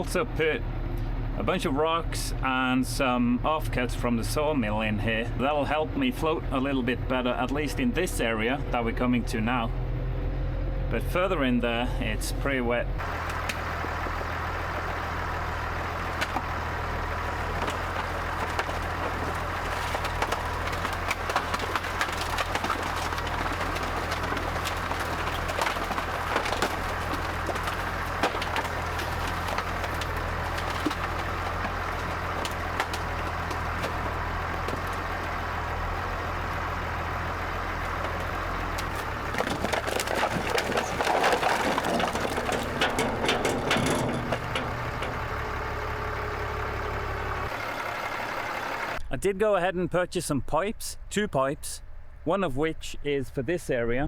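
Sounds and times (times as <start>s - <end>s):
tractor engine running: 0.0s - 49.1s
wood and frozen ground cracking: 13.0s - 47.6s.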